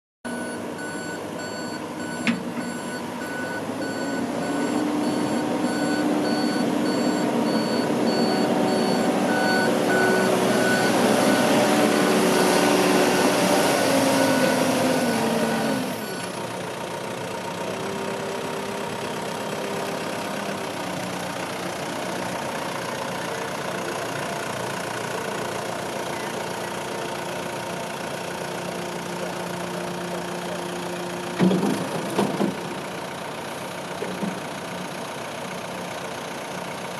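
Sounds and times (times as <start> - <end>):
reversing alarm beeping: 0.3 - 16.3
diesel engine revving: 0.3 - 36.8.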